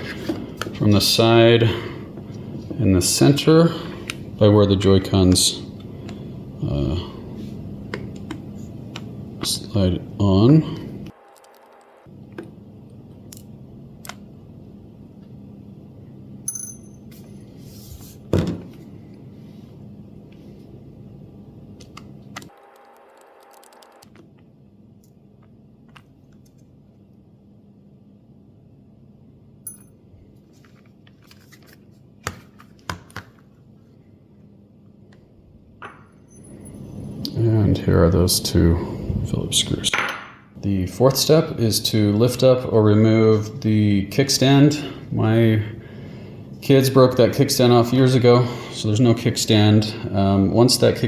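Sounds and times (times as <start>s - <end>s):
faint steady hum: 0.0s - 51.0s
metallic tinkle: 16.5s - 17.0s.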